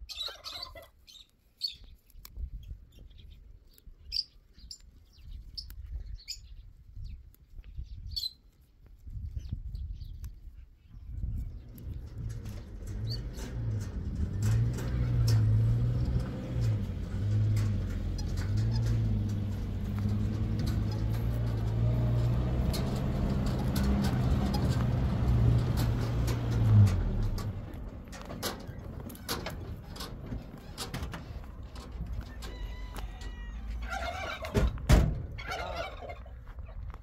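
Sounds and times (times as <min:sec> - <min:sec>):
engine humming: 0:11.2 - 0:37.0.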